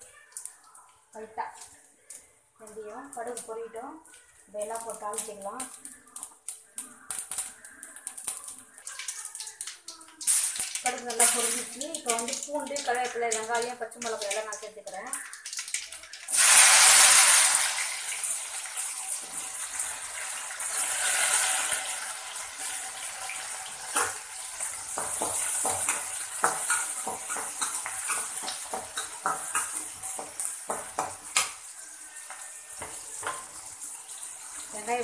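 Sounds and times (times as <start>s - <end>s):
onions sizzling in hot oil: 0.0s - 35.0s
metal spatula scraping a pan: 20.7s - 34.7s.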